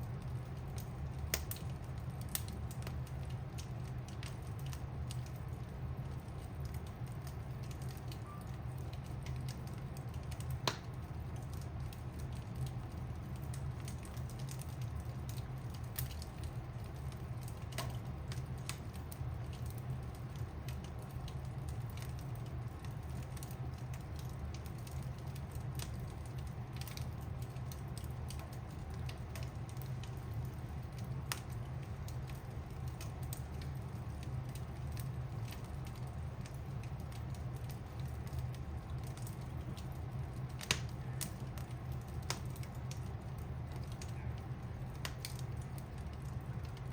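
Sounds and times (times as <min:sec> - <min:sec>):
fire crackling: 0:00.0 - 0:46.9
fire rumbling: 0:00.0 - 0:46.9
logs popping: 0:07.6 - 0:12.8, 0:34.4 - 0:44.2, 0:44.9 - 0:46.9.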